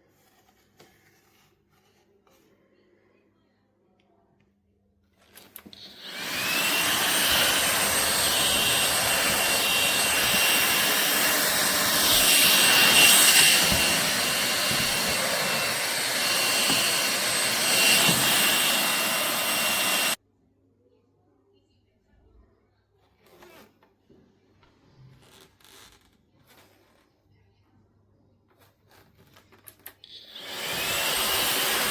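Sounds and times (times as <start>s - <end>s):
vacuum cleaner motor whining: 5.4s - 20.2s, 30.0s - 31.9s.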